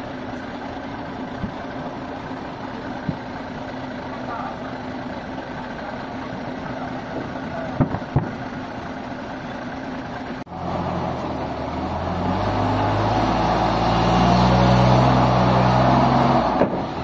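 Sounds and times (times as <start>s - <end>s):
vehicle engine running: 0.0s - 17.0s
sharp knocks: 7.8s - 8.4s.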